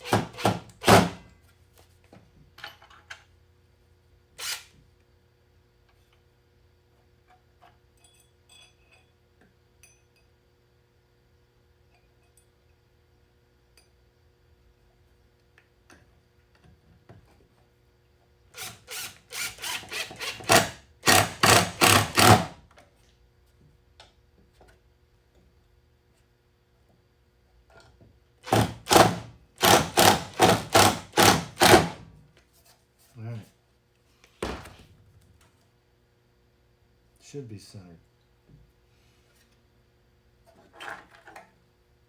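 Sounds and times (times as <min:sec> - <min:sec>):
power drill short bursts: 0:18.6 - 0:22.6, 0:28.5 - 0:32.0.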